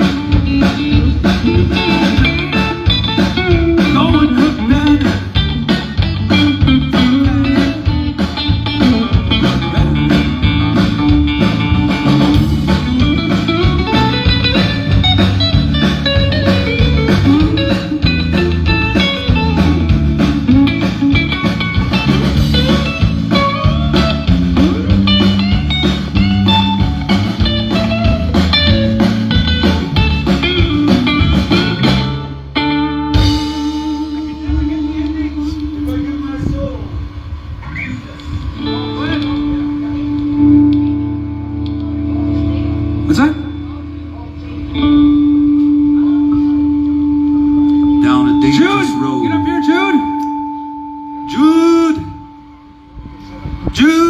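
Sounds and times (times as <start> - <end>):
drum kit beat: 0.0 - 32.3, 33.1 - 36.2, 47.7 - 50.6
electric guitar playing blues-rock: 0.0 - 54.0
walking bass line: 0.0 - 54.0.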